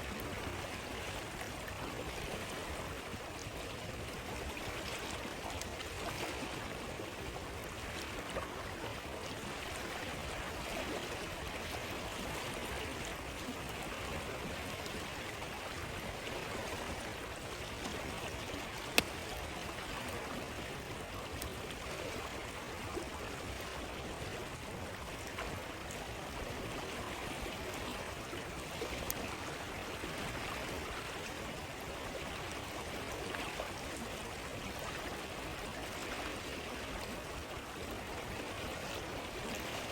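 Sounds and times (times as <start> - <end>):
stream flowing: 0.0 - 39.9
campfire popping and crackling: 18.7 - 19.5.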